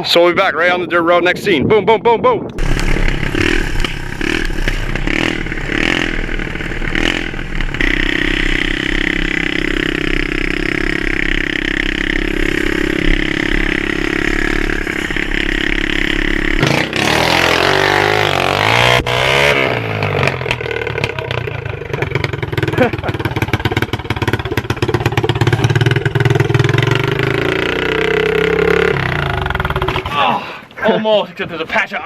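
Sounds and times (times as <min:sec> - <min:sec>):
pit bike engine running: 0:02.6 - 0:30.1.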